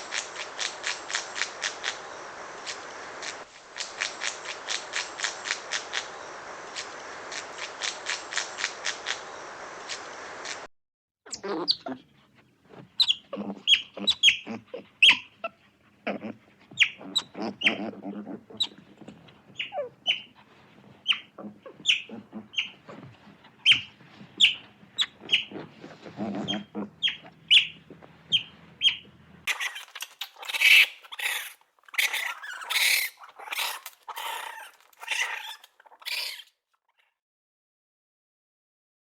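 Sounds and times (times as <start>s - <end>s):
harsh animal calls: 11.3s - 36.5s.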